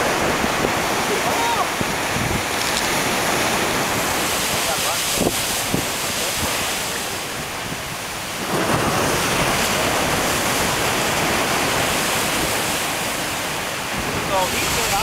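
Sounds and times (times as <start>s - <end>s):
ocean surf: 0.0s - 15.0s
wind on microphone: 0.0s - 15.0s.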